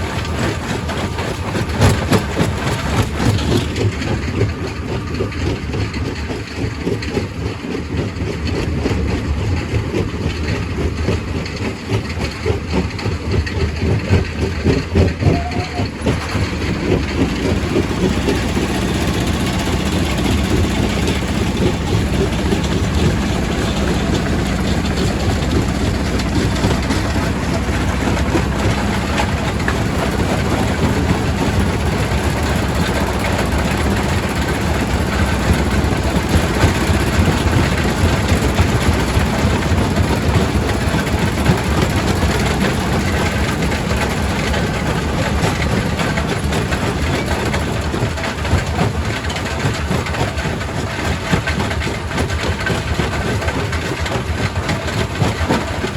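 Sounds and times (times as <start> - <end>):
rock crusher drone: 13.3 - 51.9.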